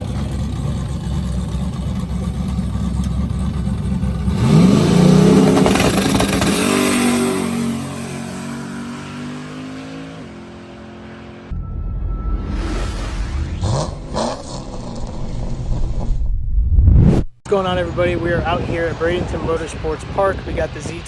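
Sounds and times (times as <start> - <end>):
drag car engine revving: 0.0 - 11.5.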